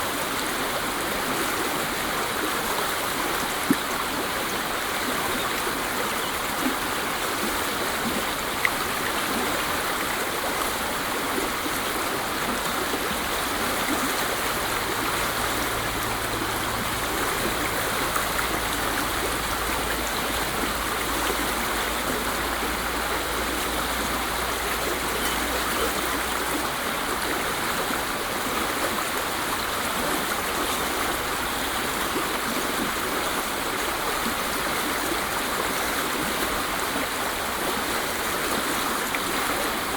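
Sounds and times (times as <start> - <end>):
waterfall splashing: 9.6 - 32.2.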